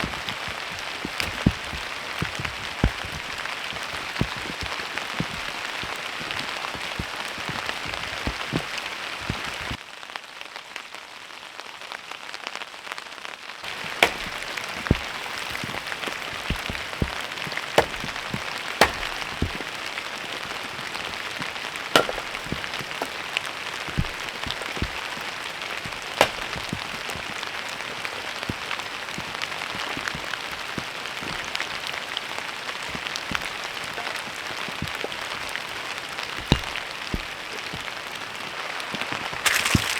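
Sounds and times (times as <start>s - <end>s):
heavy raindrops striking: 13.7s - 39.9s.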